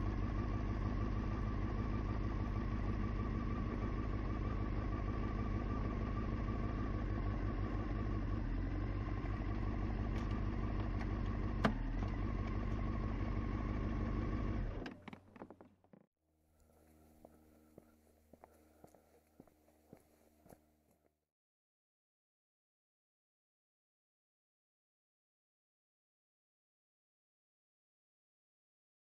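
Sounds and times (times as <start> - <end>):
motorcycle engine idling: 0.0 - 15.6, 16.6 - 20.9.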